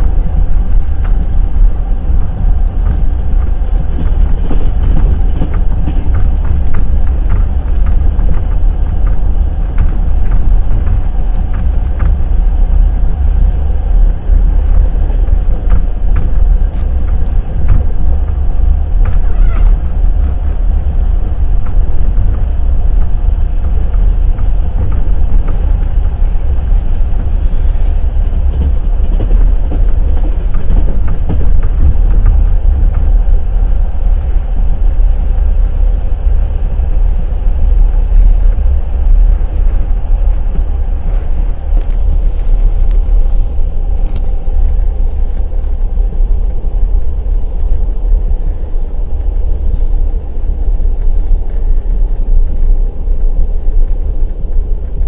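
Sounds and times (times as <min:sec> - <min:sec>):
low rumble: 0:00.0 - 0:55.0
train wheels clattering on rails: 0:00.0 - 0:55.0.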